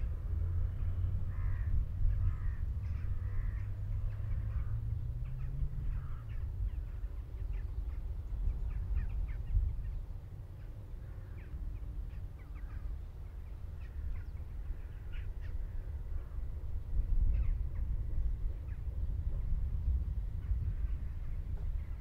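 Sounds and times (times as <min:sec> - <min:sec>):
steady low rumble: 0:00.0 - 0:22.0
birds calling and chirping: 0:00.6 - 0:22.0.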